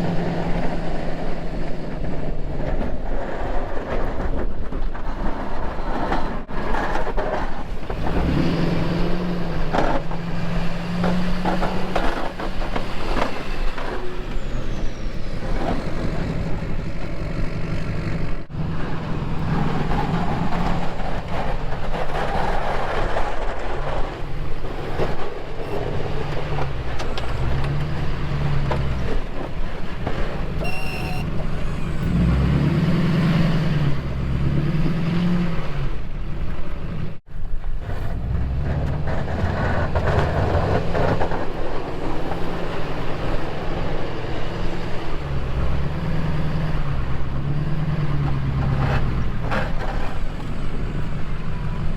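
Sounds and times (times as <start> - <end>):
truck engine revving: 0.0 - 3.4, 5.9 - 51.9
knocks and clunks: 2.0 - 14.6, 15.3 - 32.3
short high beep: 30.6 - 31.3.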